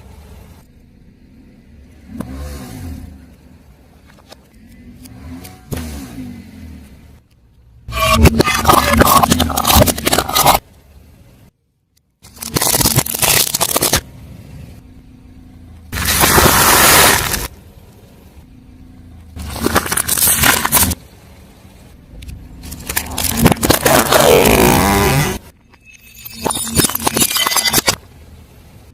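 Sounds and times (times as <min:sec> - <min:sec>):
tyre crushing objects: 0:22.7 - 0:25.4.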